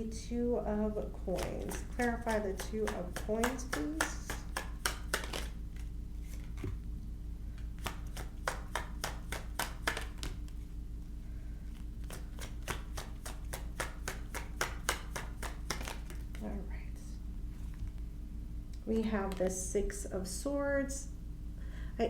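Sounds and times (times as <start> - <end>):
steady low hum: 0.0 - 22.0
cards being shuffled: 1.3 - 6.8, 7.6 - 10.7, 11.7 - 16.5.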